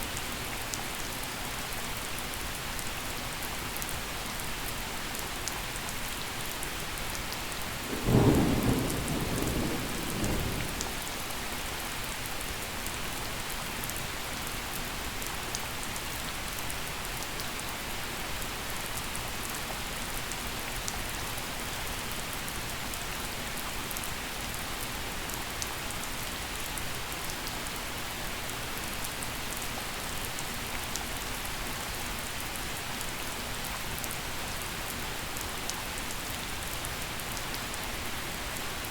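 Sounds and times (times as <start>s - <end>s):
gentle rain falling: 0.0s - 38.9s
thunder clap rumbling: 7.9s - 11.0s.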